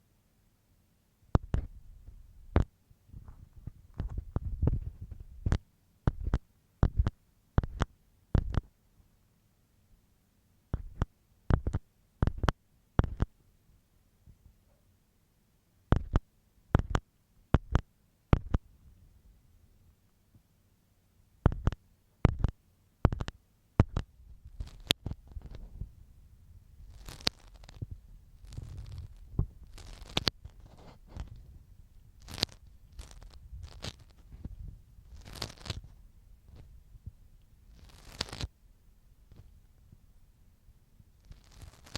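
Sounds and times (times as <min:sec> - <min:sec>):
soft low rumble: 0:01.3 - 0:07.8, 0:21.4 - 0:41.8
ear pick tapping: 0:01.3 - 0:08.7, 0:10.7 - 0:13.3, 0:15.9 - 0:18.7, 0:21.4 - 0:24.1
ear pick scratching and rubbing: 0:01.4 - 0:08.7, 0:10.7 - 0:13.3, 0:15.9 - 0:17.0, 0:17.6 - 0:18.6, 0:21.4 - 0:25.9, 0:26.8 - 0:36.7, 0:37.7 - 0:38.5, 0:41.2 - 0:41.9.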